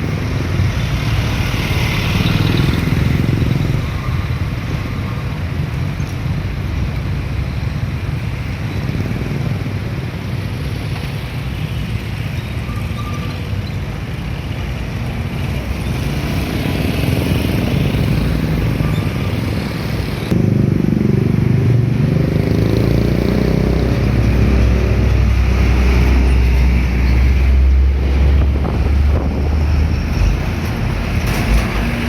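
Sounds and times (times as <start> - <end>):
highway traffic passing: 0.0 - 32.0
truck engine rumble: 13.0 - 32.0.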